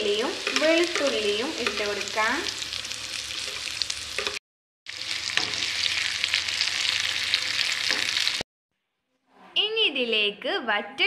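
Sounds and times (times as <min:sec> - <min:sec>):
shallots and garlic sizzling in oil: 0:00.0 - 0:08.4.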